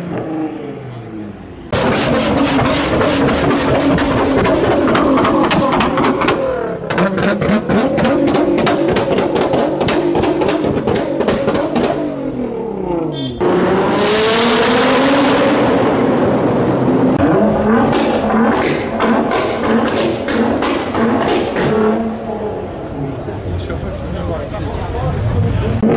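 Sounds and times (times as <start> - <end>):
car engine revving: 0.0 - 25.9
exhaust popping and crackling: 1.7 - 12.2, 17.1 - 22.2.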